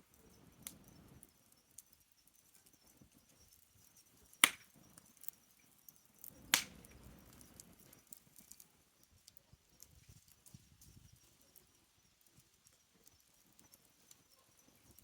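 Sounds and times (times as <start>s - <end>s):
campfire wood crackling: 0.0s - 15.0s
loud sharp pops of fire: 4.4s - 4.9s, 6.2s - 8.0s.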